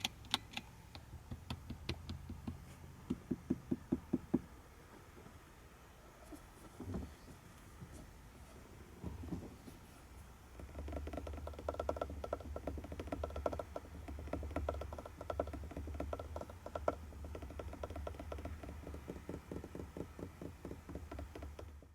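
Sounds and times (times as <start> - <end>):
fast mechanical clicks: 10.5 - 21.9.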